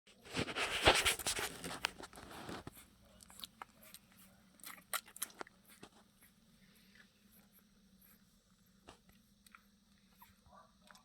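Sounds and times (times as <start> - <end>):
noisy rustle: 0.1 - 2.9
puppies sucking and smacking: 0.2 - 11.0.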